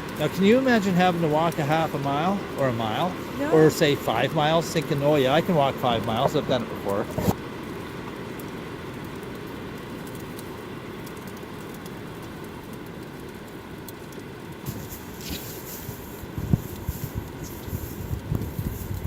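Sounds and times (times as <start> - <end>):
wind rumble: 14.6 - 19.0
footsteps crunching in snow: 14.7 - 19.0.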